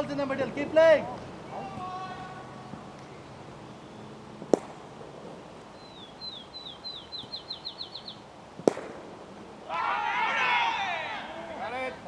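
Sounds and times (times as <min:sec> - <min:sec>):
sharp crack: 0:04.4 - 0:04.9, 0:08.6 - 0:09.3
bird whistling: 0:05.8 - 0:08.2.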